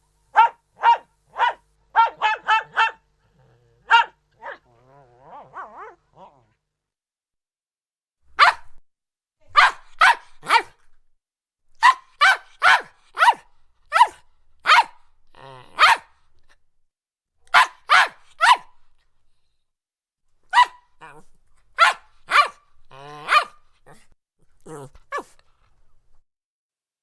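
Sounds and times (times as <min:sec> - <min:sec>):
dog barking in high yaps: 0:00.3 - 0:03.0, 0:03.9 - 0:04.7, 0:08.4 - 0:08.8, 0:09.5 - 0:10.8, 0:11.8 - 0:15.0, 0:15.8 - 0:16.1, 0:17.5 - 0:18.7, 0:20.5 - 0:20.9, 0:21.8 - 0:22.6, 0:23.2 - 0:23.6.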